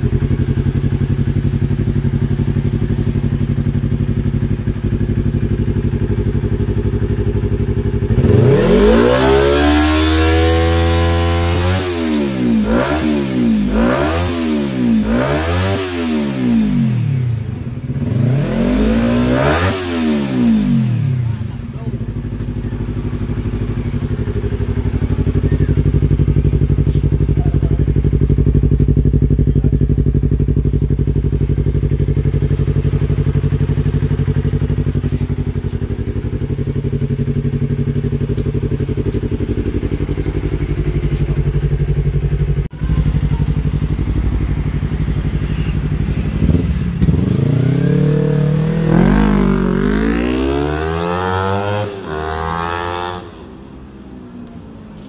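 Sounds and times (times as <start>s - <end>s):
motorcycle engine idling: 0.0s - 13.9s, 16.2s - 19.3s, 20.2s - 50.5s
motorcycle throttle blips: 20.4s - 54.7s.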